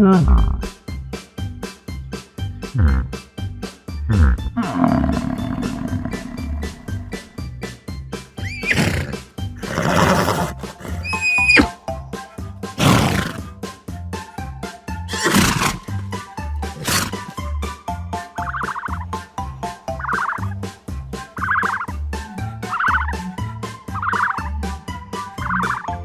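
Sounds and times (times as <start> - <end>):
background music with steady beat: 0.0 - 10.4, 11.8 - 16.8, 17.4 - 26.0
horse neighing: 4.2 - 7.2, 8.4 - 11.8, 12.8 - 13.5, 15.1 - 15.9, 16.8 - 17.4
turkey gobbling: 18.4 - 19.1, 19.9 - 20.5, 21.4 - 22.0, 22.6 - 23.3, 24.0 - 24.5, 25.4 - 26.0.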